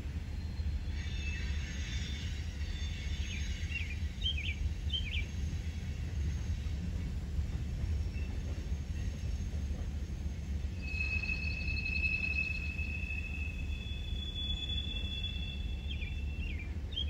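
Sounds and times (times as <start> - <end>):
bird chirps: 10.8 - 17.0.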